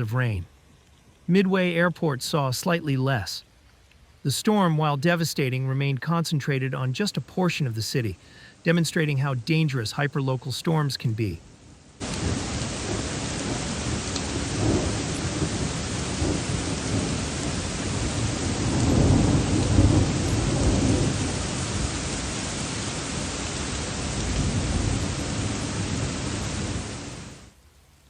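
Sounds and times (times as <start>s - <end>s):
heavy rain: 4.2s - 28.0s
thunder rumbling: 12.0s - 27.4s.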